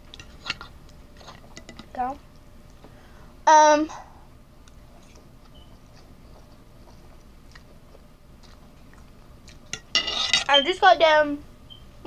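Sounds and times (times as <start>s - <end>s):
chewing noodles: 4.6s - 9.7s.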